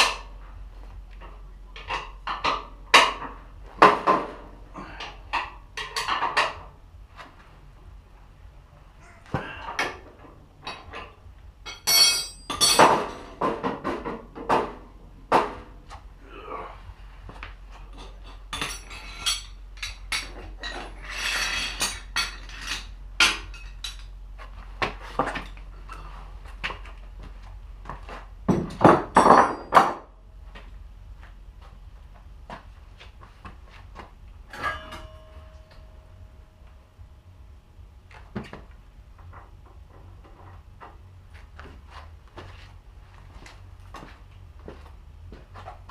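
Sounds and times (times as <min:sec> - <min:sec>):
metal tools clinking: 0:10.6 - 0:13.2, 0:17.9 - 0:24.1, 0:34.5 - 0:36.0.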